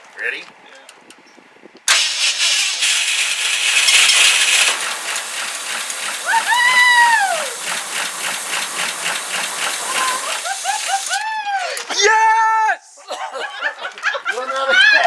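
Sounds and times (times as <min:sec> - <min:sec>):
truck engine cranking and starting: 0:01.9 - 0:11.2
person whooping: 0:06.2 - 0:07.6, 0:09.9 - 0:12.7.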